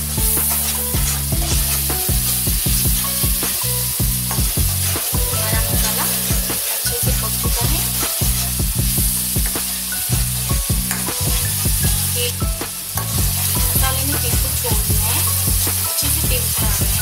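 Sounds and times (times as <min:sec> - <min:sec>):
food sizzling in a pan: 0:00.0 - 0:17.0
spoon scraping a pan: 0:00.3 - 0:14.3.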